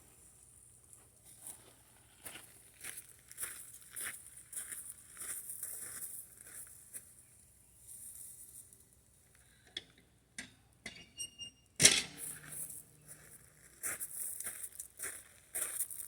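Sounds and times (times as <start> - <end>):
rustling and crinkling: 12.2 - 16.0.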